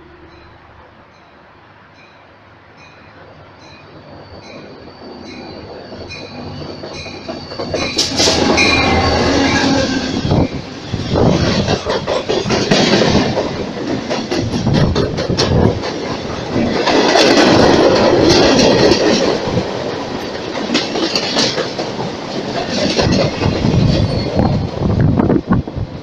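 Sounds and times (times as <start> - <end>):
train wheels clattering over rail joints: 5.4 - 25.3.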